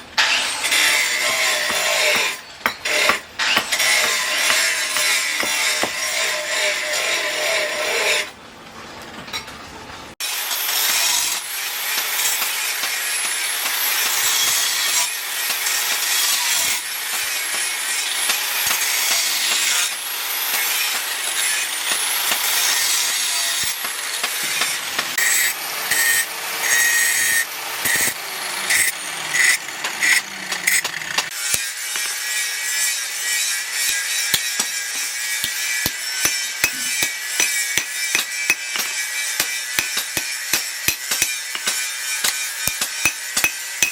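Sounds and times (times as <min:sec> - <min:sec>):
hand tool scraping strokes: 0:00.2 - 0:08.3, 0:22.4 - 0:43.9.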